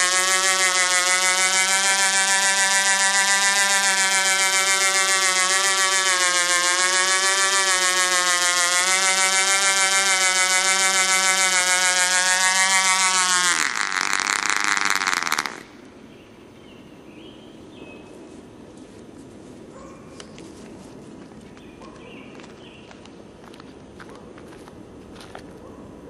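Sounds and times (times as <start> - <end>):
model helicopter engine running: 0.0 - 15.7.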